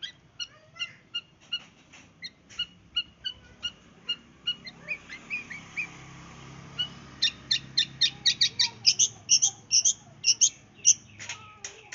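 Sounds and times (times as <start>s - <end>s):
shrike singing: 2.2s - 6.0s, 6.7s - 11.4s.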